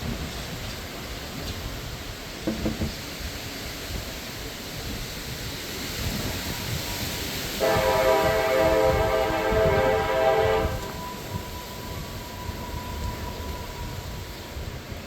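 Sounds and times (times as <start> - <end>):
gusty wind buffeting microphone: 0.0 - 15.0
train air horn: 7.5 - 13.8.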